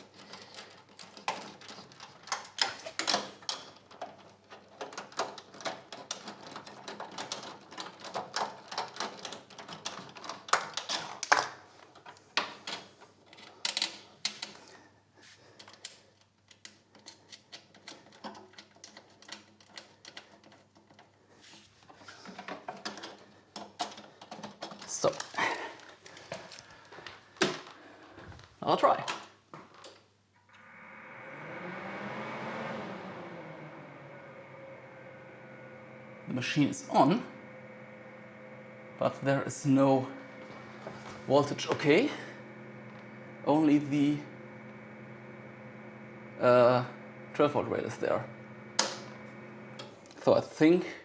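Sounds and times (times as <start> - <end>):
hardware clicking and knocking: 0.0 - 14.7, 15.6 - 21.2, 22.0 - 26.7.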